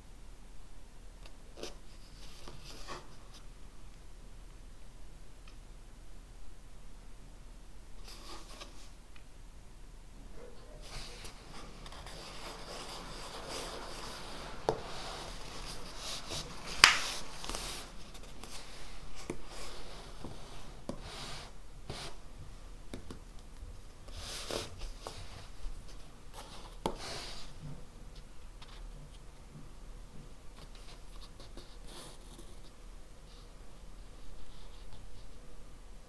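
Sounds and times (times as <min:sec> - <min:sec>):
pen scratching on paper: 0:10.9 - 0:18.7.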